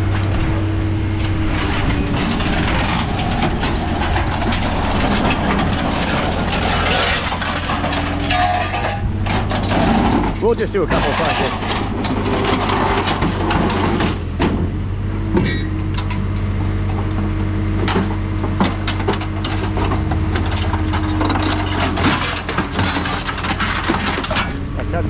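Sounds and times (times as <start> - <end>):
metal clanks and cracks: 0.0 - 14.7, 15.4 - 24.6
machine engine running: 0.0 - 25.0
hydraulic whine: 14.2 - 25.0.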